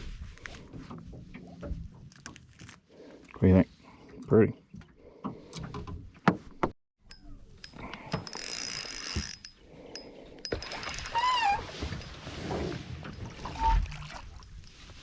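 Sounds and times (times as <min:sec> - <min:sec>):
fishing gear clicking and rattling: 0:07.1 - 0:15.0
fishing reel whirring: 0:08.2 - 0:09.6.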